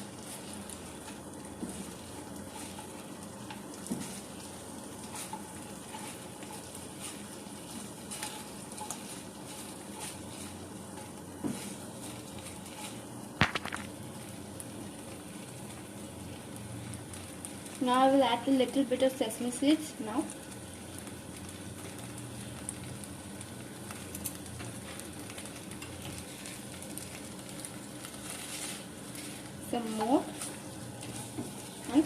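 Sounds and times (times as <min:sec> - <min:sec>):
chicken sizzling in frying pan: 0:00.0 - 0:32.0
spatula scraping and tapping pan: 0:00.2 - 0:04.4, 0:05.0 - 0:13.7, 0:28.1 - 0:32.0.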